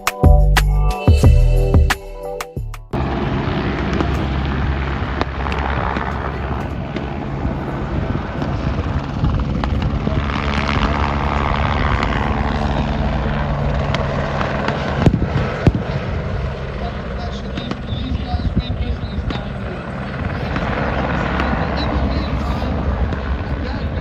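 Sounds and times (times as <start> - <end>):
music: 0.0 - 3.0
helicopter rotor and engine: 3.0 - 24.0.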